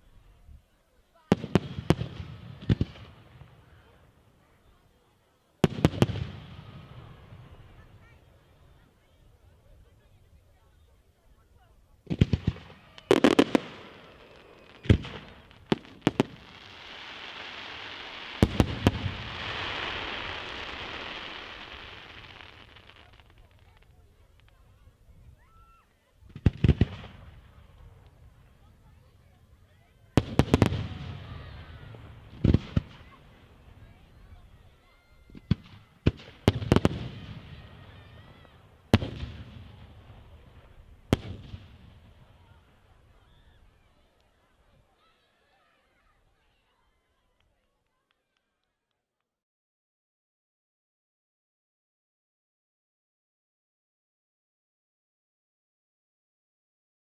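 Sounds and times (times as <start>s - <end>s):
fireworks bangs: 1.3s - 4.2s, 5.6s - 8.3s, 12.0s - 25.1s, 26.2s - 29.3s, 30.0s - 43.3s
fireworks crackling hiss: 12.1s - 43.2s.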